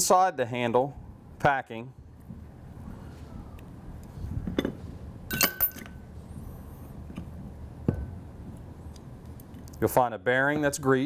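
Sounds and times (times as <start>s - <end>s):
brief metallic ring: 5.3s - 6.0s
small metal parts clinking: 5.3s - 6.0s.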